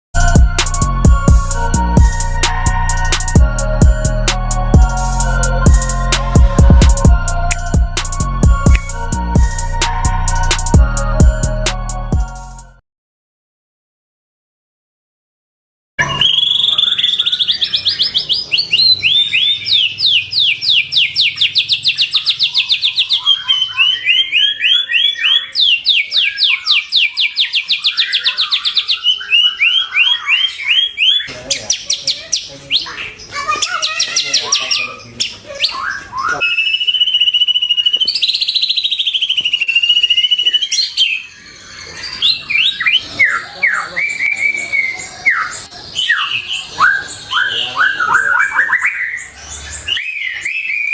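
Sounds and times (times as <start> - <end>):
low down-slurred whistles: 16.0 - 17.6, 36.3 - 40.8
songbird singing trills: 16.0 - 50.9.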